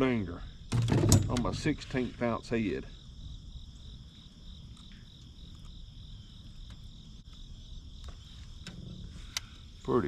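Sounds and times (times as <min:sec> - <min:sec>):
insects chirping: 0:00.0 - 0:10.0
faint clicks: 0:08.0 - 0:09.6.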